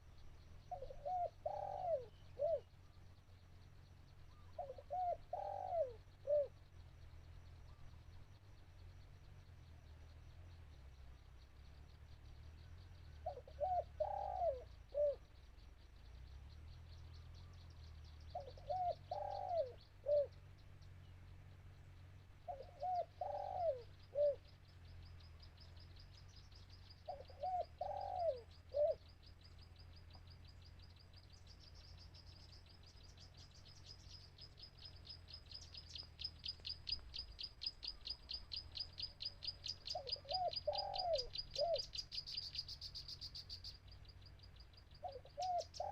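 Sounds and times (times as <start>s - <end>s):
dove cooing: 0.7s - 2.7s, 4.3s - 6.6s, 13.2s - 15.3s, 18.3s - 20.4s, 22.5s - 24.5s, 27.0s - 29.1s, 36.2s - 42.6s, 45.0s - 45.9s.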